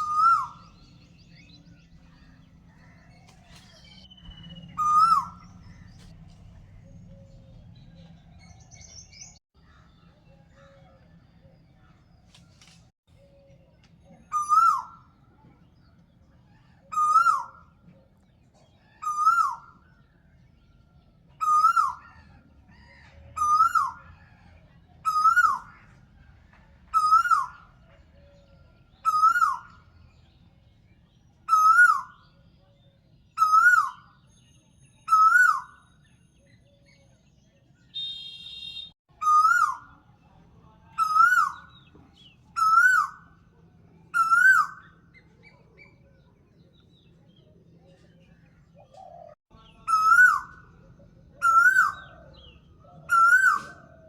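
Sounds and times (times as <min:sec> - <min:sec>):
bird whistled call: 0:00.0 - 0:01.7, 0:03.5 - 0:06.0, 0:14.3 - 0:15.1, 0:33.4 - 0:36.0, 0:37.9 - 0:39.8, 0:49.9 - 0:50.6, 0:51.4 - 0:54.0.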